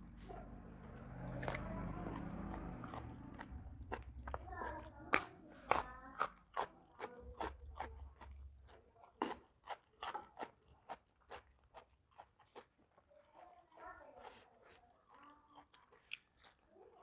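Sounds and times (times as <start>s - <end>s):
crunching and chewing beans: 0.0s - 17.0s.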